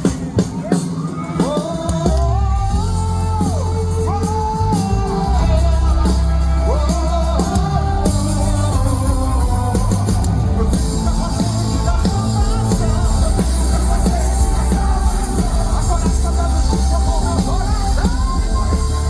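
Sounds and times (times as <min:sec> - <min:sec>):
gospel band music: 0:00.0 - 0:19.0.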